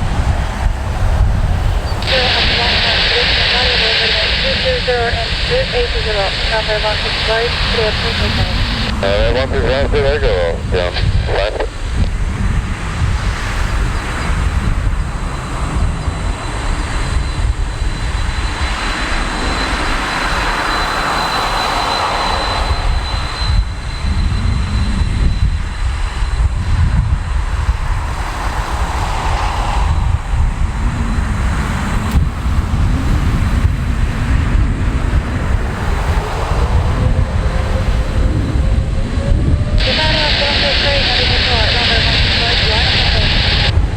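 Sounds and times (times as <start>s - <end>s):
jet engines rumbling: 0.0s - 43.9s
faint high whine: 1.8s - 12.2s, 35.8s - 43.9s.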